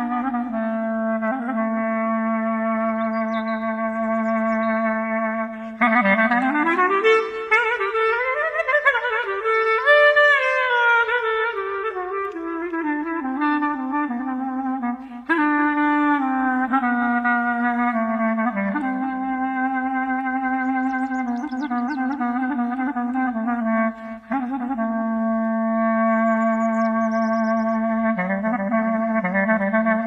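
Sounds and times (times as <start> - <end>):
clarinet slow melody: 0.0 - 30.0
faint bird chirps: 2.9 - 5.0, 20.6 - 22.2, 26.1 - 27.8.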